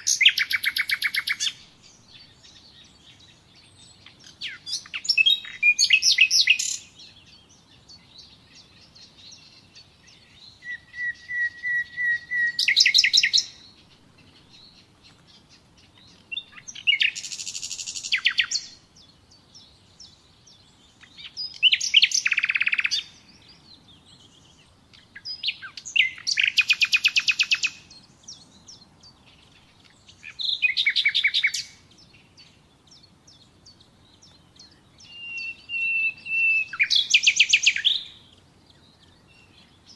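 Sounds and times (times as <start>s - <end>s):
nightingale singing trills: 0.0s - 39.9s.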